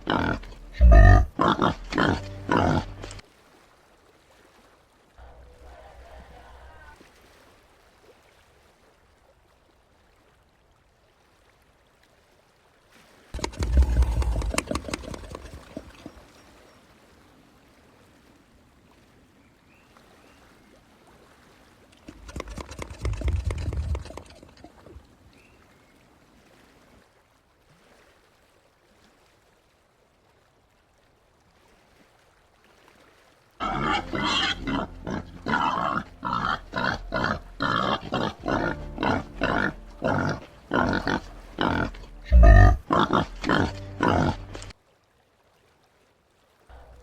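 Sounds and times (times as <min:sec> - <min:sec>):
peccary grunting: 0:00.0 - 0:03.2, 0:13.4 - 0:16.1, 0:22.1 - 0:24.7, 0:33.6 - 0:44.7.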